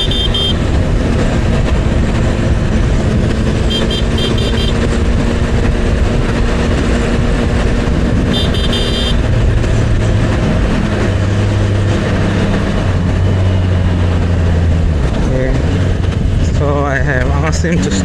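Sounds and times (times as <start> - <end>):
motorcycle engine running: 0.0 - 16.5
road noise: 0.0 - 18.0
wind noise: 0.0 - 18.0.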